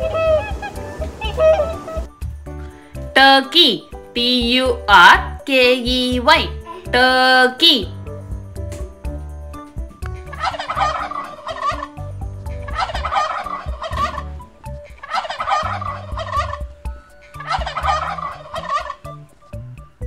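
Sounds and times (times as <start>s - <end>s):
soft background music: 0.0s - 20.0s
turkey gobbling: 10.3s - 11.9s, 12.6s - 14.4s, 15.0s - 16.7s, 17.3s - 19.1s.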